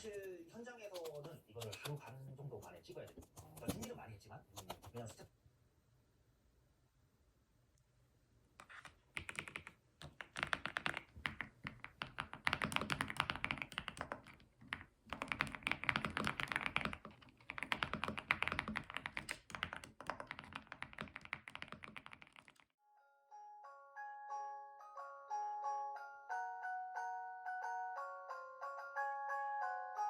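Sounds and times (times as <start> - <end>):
fast typing on keyboard: 0.9 - 5.2, 8.6 - 22.7.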